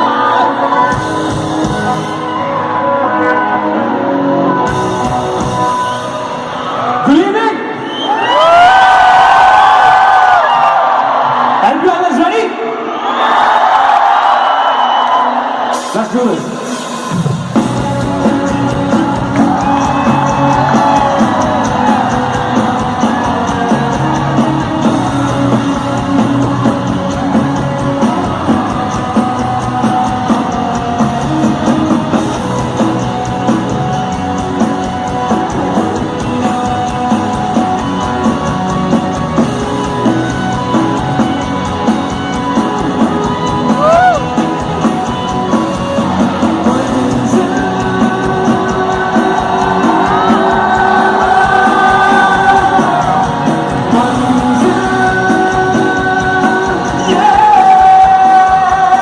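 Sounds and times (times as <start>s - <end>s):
crowd yelling: 0.0s - 59.0s
live rock band: 0.0s - 59.0s
drum beat: 17.1s - 59.0s
person singing: 17.5s - 34.0s, 46.0s - 59.0s.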